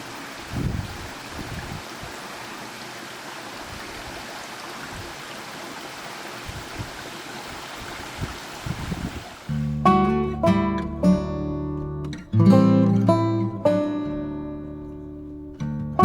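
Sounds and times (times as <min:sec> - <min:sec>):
stream water flowing: 0:00.0 - 0:09.8.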